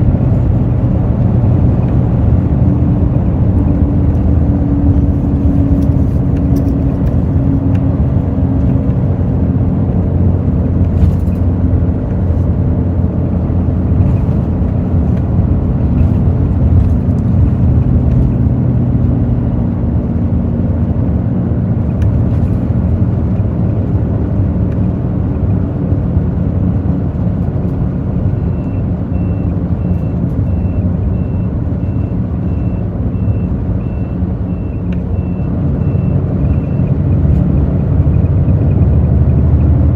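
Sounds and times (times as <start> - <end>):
bus diesel engine running: 0.0 - 39.9
high electronic beep: 28.4 - 37.0.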